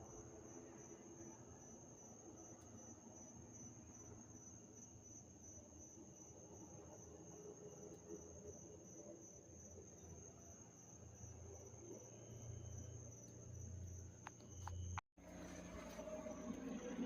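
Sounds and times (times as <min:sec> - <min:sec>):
high-pitched insect trill: 0:00.1 - 0:16.7
low hum: 0:11.1 - 0:17.0.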